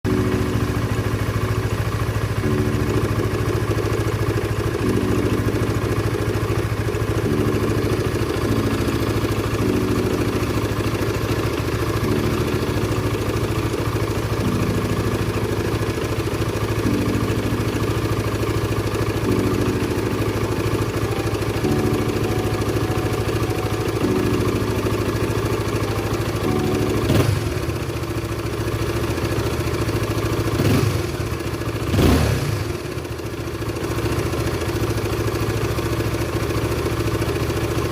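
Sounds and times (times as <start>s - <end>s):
motorcycle engine idling: 0.1s - 37.9s
engine revving blip: 26.8s - 27.8s, 31.9s - 32.8s.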